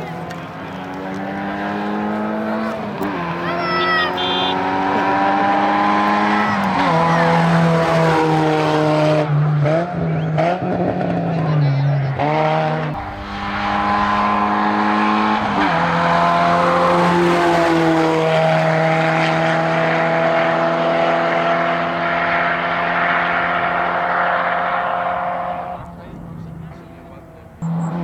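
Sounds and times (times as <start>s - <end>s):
rally car engine pulling hard: 0.0s - 28.0s.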